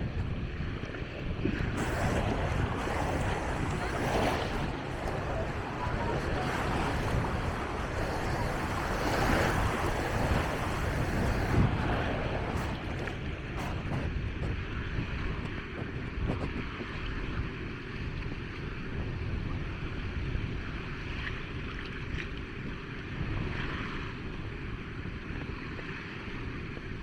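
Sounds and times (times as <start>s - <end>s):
wind buffeting microphone: 0.0s - 20.9s
small waves breaking on sand: 1.0s - 15.2s.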